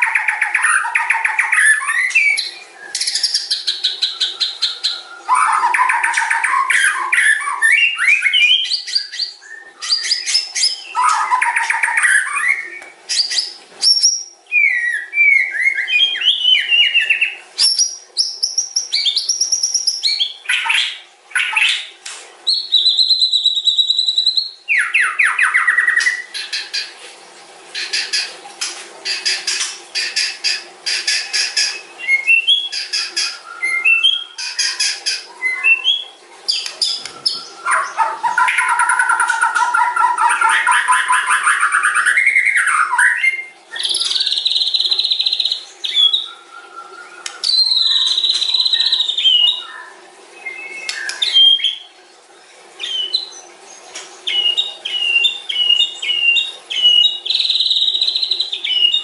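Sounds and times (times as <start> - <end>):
songbird singing: 0.0 - 26.9, 29.0 - 52.0, 52.8 - 59.0.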